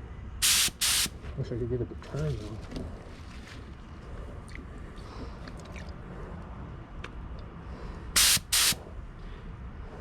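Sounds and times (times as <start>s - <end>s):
low background rumble: 0.0s - 0.4s, 1.1s - 10.0s
spray gun hisses: 0.4s - 1.1s, 8.2s - 8.8s.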